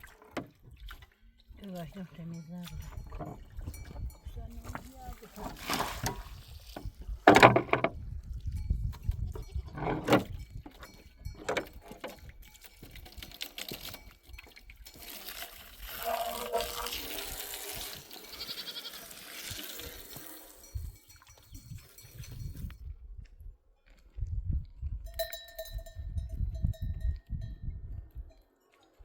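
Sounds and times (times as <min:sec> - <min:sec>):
sheep or goats bleating: 0:09.2 - 0:10.0, 0:18.1 - 0:20.6.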